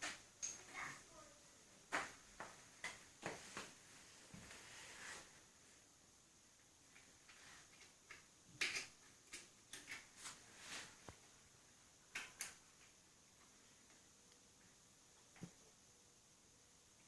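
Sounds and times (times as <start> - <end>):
small parts clicking and tapping: 0.0 - 0.8, 6.9 - 10.2, 12.1 - 13.0.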